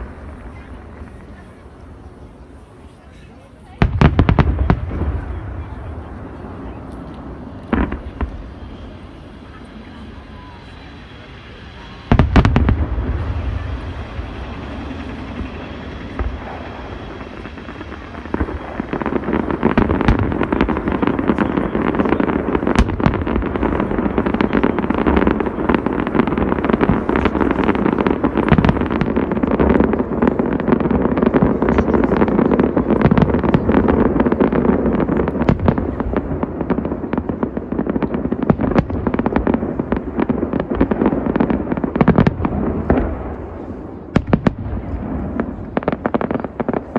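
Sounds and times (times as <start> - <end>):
loud firework bang: 11.8 - 34.7
fireworks barrage of pops: 11.8 - 46.9.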